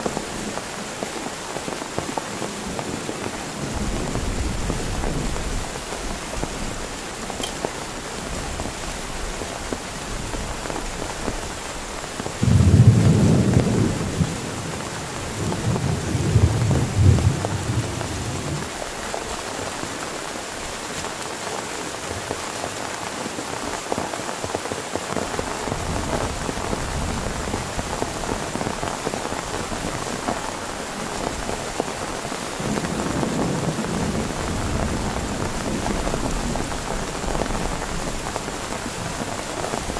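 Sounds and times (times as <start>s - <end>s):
heavy rain: 0.0s - 39.9s
low rolls of thunder: 12.4s - 18.8s, 32.6s - 38.3s.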